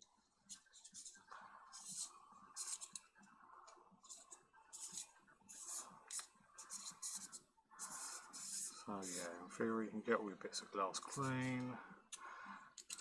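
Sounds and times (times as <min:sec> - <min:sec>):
lens parts clicking and scraping: 0:12.8 - 0:13.0.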